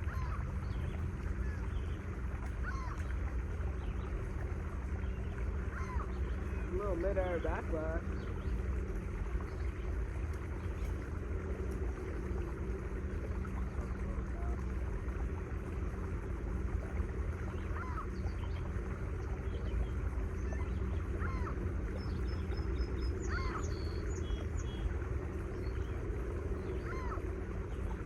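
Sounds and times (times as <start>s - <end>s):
low machinery hum: 0.0s - 28.0s
bird calling: 2.6s - 3.1s, 5.7s - 8.2s, 22.4s - 24.2s.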